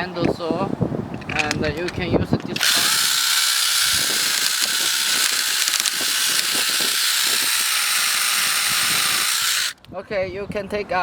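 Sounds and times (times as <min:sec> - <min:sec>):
cordless chainsaw running: 0:02.6 - 0:09.8.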